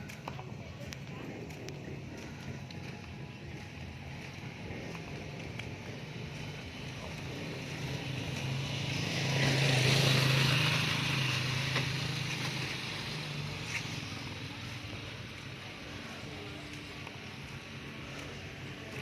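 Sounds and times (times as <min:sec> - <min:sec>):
vehicle passing by: 0:04.4 - 0:19.0.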